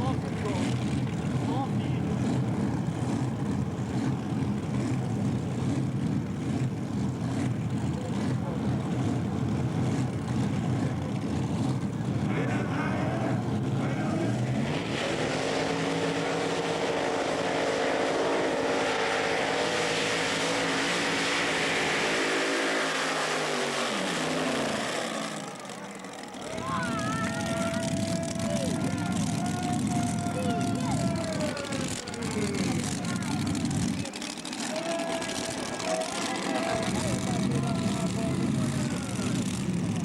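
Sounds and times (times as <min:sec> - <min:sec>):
tractor engine running rough: 0:00.0 - 0:40.0.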